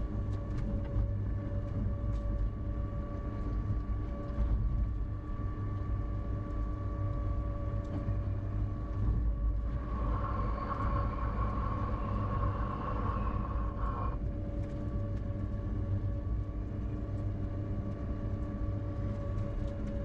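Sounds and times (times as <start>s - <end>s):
electric train rumbling on rails: 6.8s - 17.1s.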